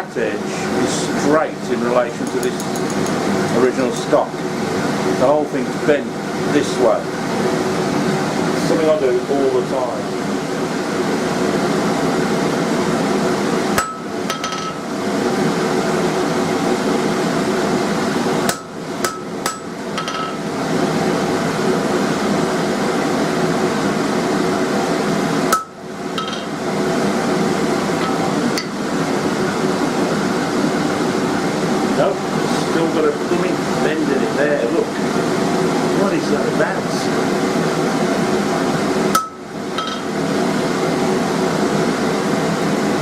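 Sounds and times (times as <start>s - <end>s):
mechanical hum: 0.0s - 43.0s
hammer striking steel on anvil: 13.8s - 14.8s, 18.5s - 20.4s, 25.5s - 26.5s, 39.2s - 40.1s.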